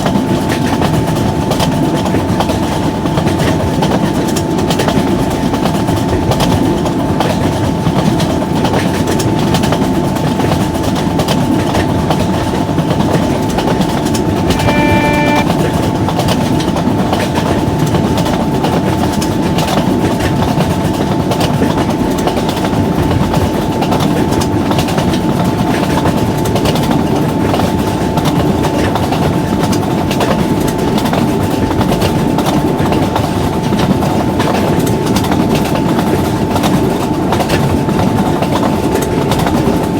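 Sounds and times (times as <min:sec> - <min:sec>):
brief pitched tone: 0:14.4 - 0:15.6
steady hum: 0:14.5 - 0:15.6.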